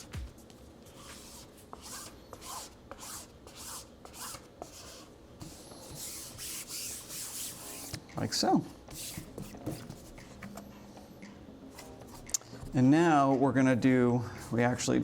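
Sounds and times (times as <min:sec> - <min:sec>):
squeegee rubbing over vinyl: 0:00.9 - 0:08.0, 0:08.9 - 0:10.5.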